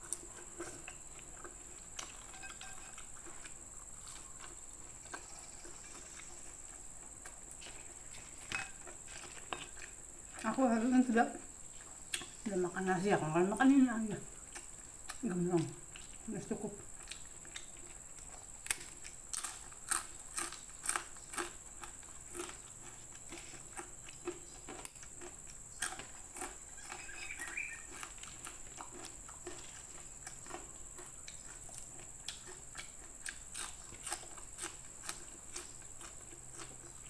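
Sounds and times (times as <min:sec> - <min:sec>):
crackers crunching: 0:00.0 - 0:10.5, 0:16.9 - 0:37.0
chewing: 0:00.0 - 0:10.9, 0:11.6 - 0:12.5, 0:14.4 - 0:37.0.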